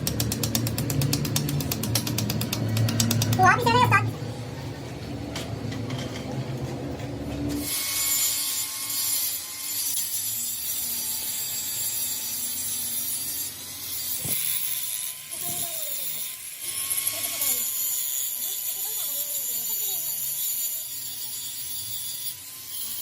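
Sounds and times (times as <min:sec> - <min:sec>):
power tool grinding metal: 0:07.5 - 0:23.0.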